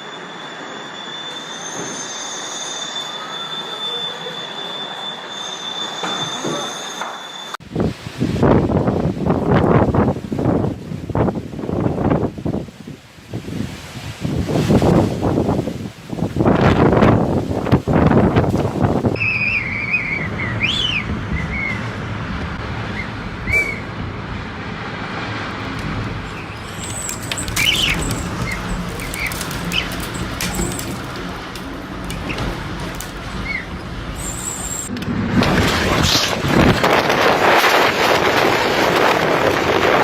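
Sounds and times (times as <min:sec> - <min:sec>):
steady rushing noise: 0:07.6 - 0:40.0
birds chirping: 0:19.2 - 0:23.9, 0:26.3 - 0:30.8.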